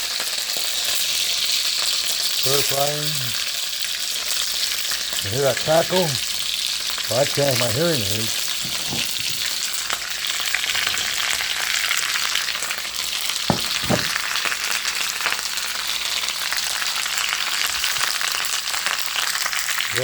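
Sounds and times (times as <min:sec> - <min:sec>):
vegetables sizzling in a wok: 0:00.0 - 0:20.0
sharp knocks: 0:13.5 - 0:14.2.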